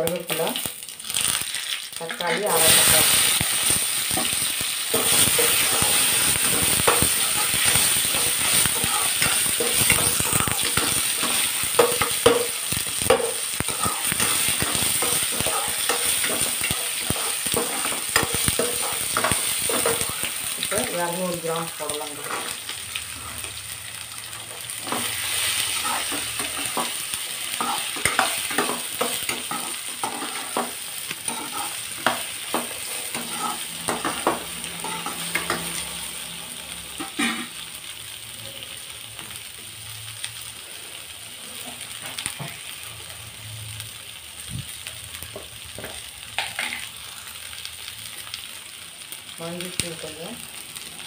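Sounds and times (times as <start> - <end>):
vegetables sizzling in hot oil: 0.0 - 51.0
metal spatula scraping pan: 2.0 - 20.7, 24.8 - 35.9, 37.0 - 37.6.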